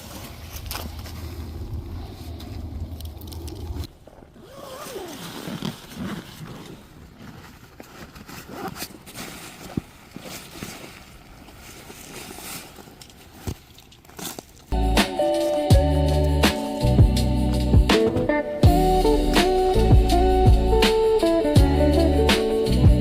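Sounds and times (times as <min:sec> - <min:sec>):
wind rumble on microphone: 0:00.0 - 0:03.9
gear rustling and scraping: 0:00.0 - 0:14.8.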